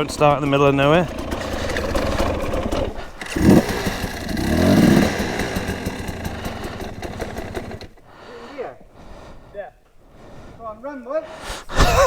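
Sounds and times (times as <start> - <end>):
dirt bike engine starting and revving: 0.0 - 8.4.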